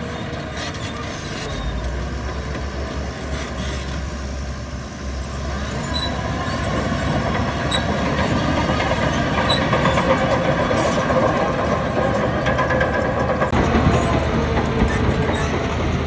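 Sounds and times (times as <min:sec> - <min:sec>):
diesel engine under load: 0:00.0 - 0:16.0
faint high squeaks: 0:05.7 - 0:06.6.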